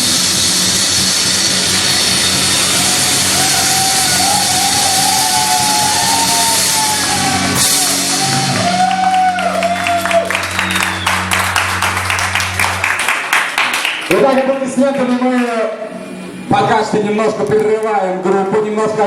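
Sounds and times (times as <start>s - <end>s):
bass and guitar chord ringing: 0.0s - 13.0s, 14.1s - 17.5s
rock band playing: 0.0s - 15.2s
crowd clapping and whooping: 2.2s - 15.7s.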